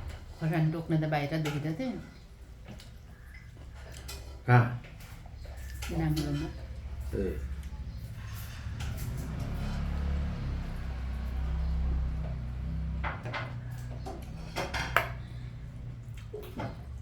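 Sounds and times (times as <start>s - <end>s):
dishes and utensils clinking: 3.4s - 7.1s, 12.9s - 15.5s.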